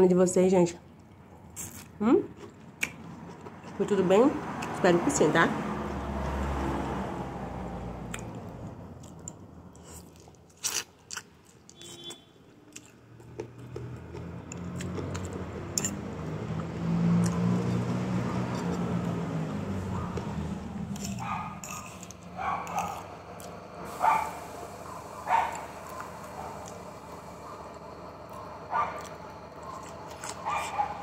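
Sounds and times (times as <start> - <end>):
person chewing food: 1.0 - 3.8, 9.0 - 19.2, 19.9 - 31.0.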